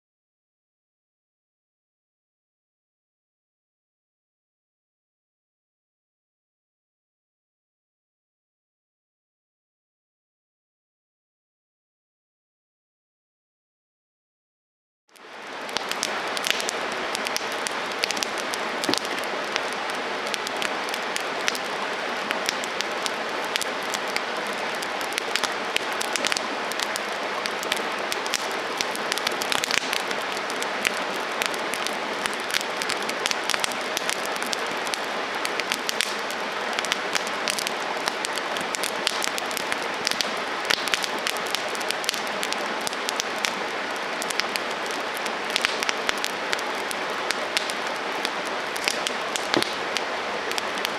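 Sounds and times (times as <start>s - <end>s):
campfire crackling and popping: 15.1s - 50.9s.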